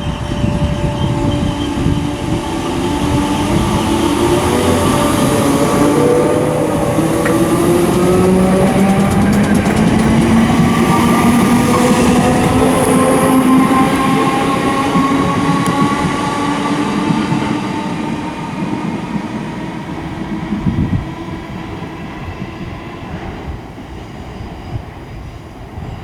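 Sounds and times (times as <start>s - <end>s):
electric train motor whine: 0.0s - 18.1s
train wheels rumbling: 0.0s - 26.0s.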